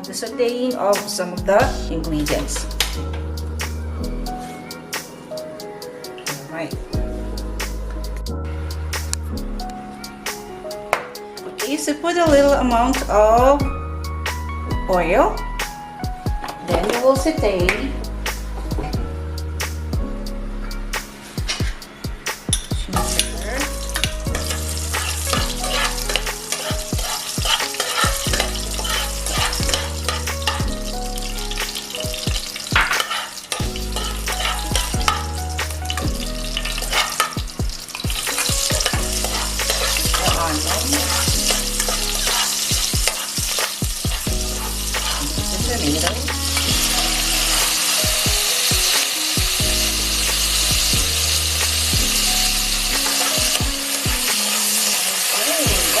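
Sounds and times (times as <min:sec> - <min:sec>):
food sizzling in oil: 0:22.5 - 0:56.0
spatula scraping pan: 0:23.0 - 0:31.0, 0:31.6 - 0:47.8.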